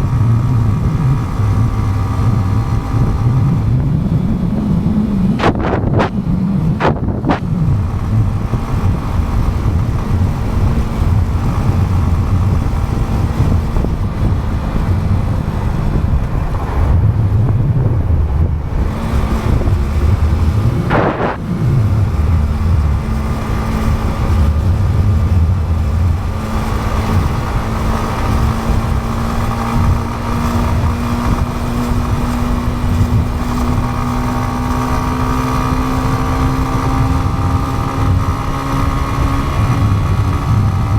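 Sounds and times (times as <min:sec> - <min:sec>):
motorcycle engine cruising: 0:00.0 - 0:40.9
wind buffeting microphone: 0:00.0 - 0:40.9
brief whoosh: 0:15.9 - 0:22.8.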